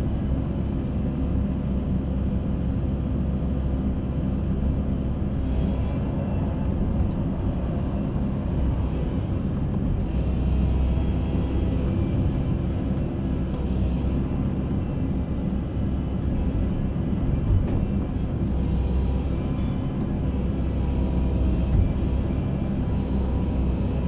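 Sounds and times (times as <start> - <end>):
concrete mixer engine rumbling: 5.2 - 24.0.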